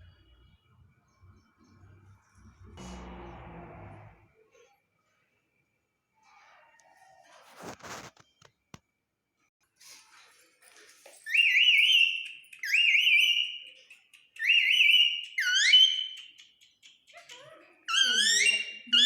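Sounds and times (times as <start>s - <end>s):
parrot chicks calling: 14.4s - 16.6s, 17.2s - 19.0s.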